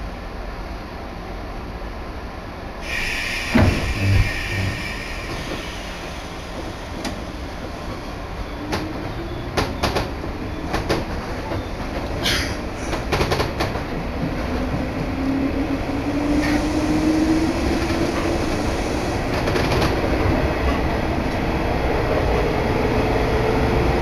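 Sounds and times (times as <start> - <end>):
train running rumble: 0.0 - 24.0
train hiss: 2.8 - 8.5.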